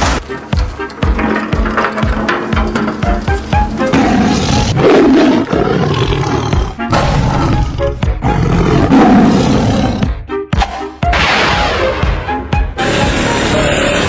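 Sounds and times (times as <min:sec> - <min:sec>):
background music: 0:00.0 - 0:14.0
loud animal roar: 0:03.9 - 0:10.1.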